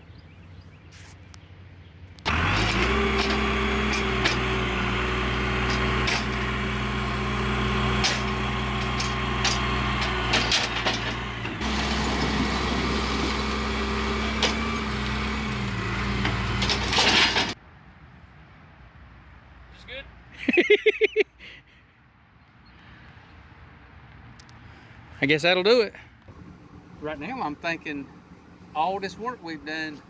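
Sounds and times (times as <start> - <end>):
knocks and clatter: 2.3 - 6.9, 7.8 - 17.6
vehicle engine running: 2.3 - 17.6, 26.3 - 30.0.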